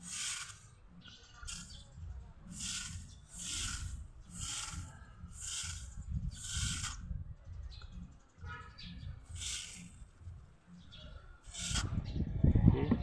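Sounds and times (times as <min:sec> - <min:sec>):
short hissing bursts: 0:00.0 - 0:00.8, 0:01.4 - 0:01.8, 0:02.5 - 0:07.0, 0:09.3 - 0:10.2, 0:11.4 - 0:11.9
low rumble: 0:11.9 - 0:13.0.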